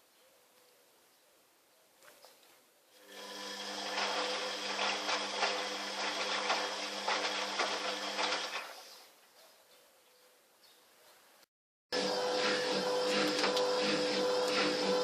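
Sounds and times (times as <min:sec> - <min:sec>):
washing machine motor humming: 0:03.0 - 0:08.8, 0:11.9 - 0:15.0.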